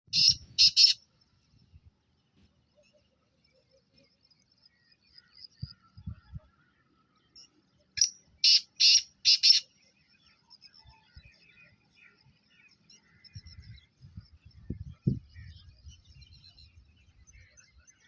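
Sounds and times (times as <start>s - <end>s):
bird squawking harshly: 0.1s - 1.0s
faint high chirping: 0.1s - 18.0s.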